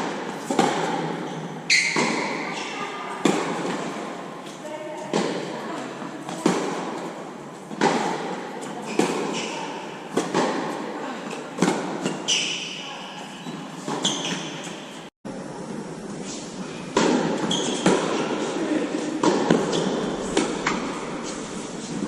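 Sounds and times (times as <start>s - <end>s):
tennis ball hits: 10.1s - 10.8s, 17.0s - 18.4s, 19.2s - 21.0s
short high squeaks: 13.4s - 14.9s.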